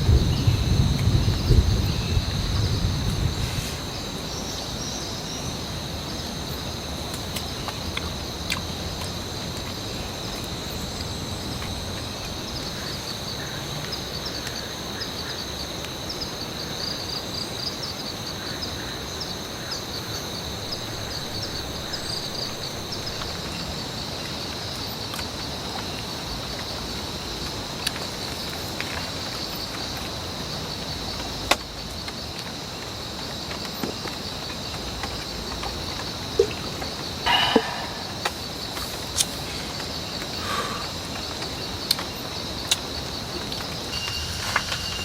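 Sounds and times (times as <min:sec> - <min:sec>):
thunder rumble: 0:00.0 - 0:04.2, 0:43.3 - 0:45.0
rain hissing: 0:00.0 - 0:04.8, 0:20.1 - 0:23.8, 0:34.8 - 0:45.0
insects droning: 0:00.0 - 0:45.0.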